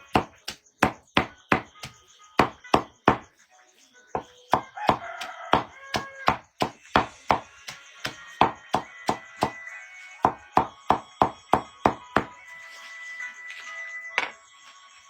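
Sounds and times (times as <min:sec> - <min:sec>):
chopping on wood: 0:00.1 - 0:03.3, 0:04.2 - 0:09.6, 0:10.2 - 0:12.4.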